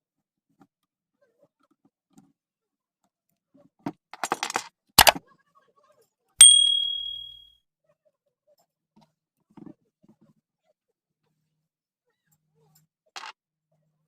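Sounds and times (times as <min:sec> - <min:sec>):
ringing metallic clink: 0:06.4 - 0:07.4.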